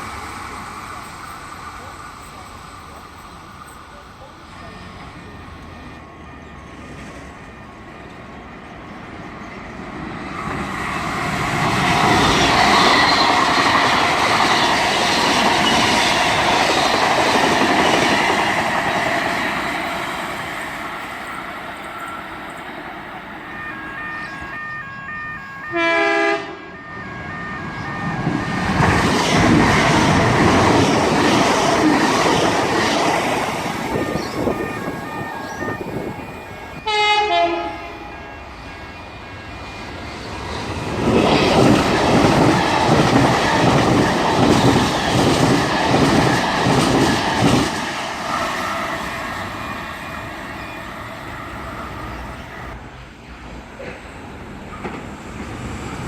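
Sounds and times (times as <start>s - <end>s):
train passing at high speed: 0.0s - 56.0s
horn-like tones: 23.6s - 28.3s, 33.9s - 40.0s
loud train horn blast: 25.2s - 27.8s, 36.8s - 39.8s.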